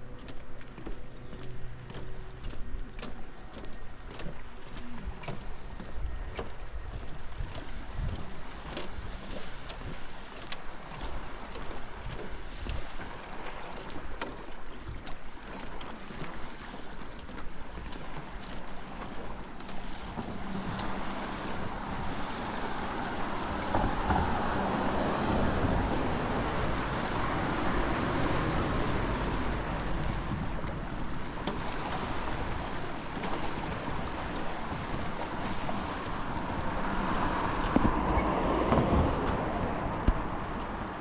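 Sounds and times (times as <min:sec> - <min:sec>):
waves washing onto shore: 0:00.0 - 0:41.0
wind on microphone: 0:04.3 - 0:13.7, 0:19.7 - 0:41.0.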